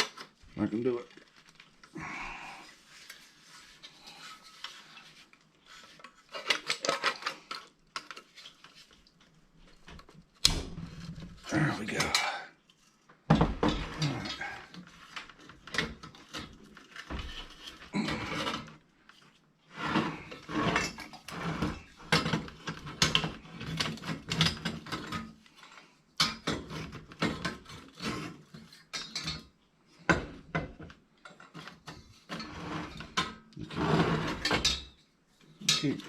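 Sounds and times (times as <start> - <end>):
metal parts scraping and rattling: 2.7 - 10.1, 13.6 - 29.5, 31.2 - 36.0.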